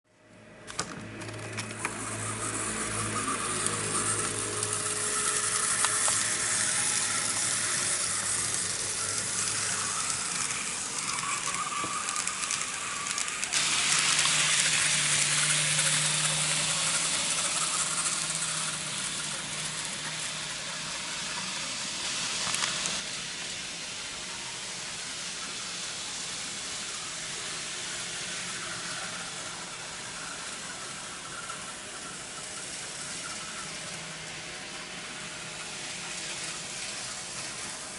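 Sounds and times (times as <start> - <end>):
model trains rattling on track: 0.7 - 37.9.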